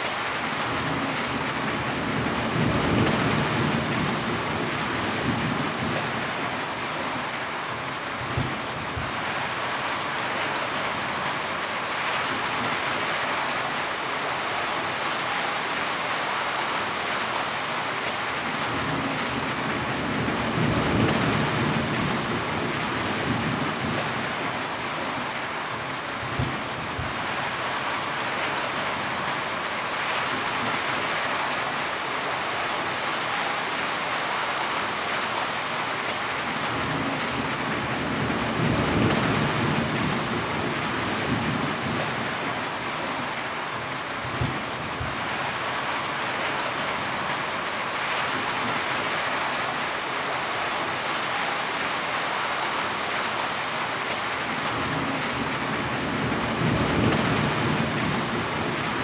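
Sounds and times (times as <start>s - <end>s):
heavy rain: 0.0s - 59.0s
thunder rumbles: 54.6s - 59.0s.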